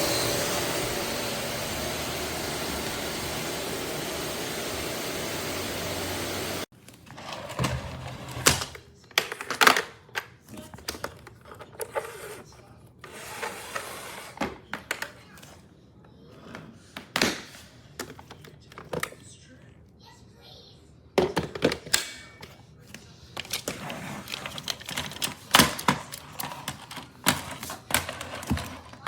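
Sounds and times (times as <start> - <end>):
vacuum cleaner running: 0.0 - 6.7, 23.4 - 29.0.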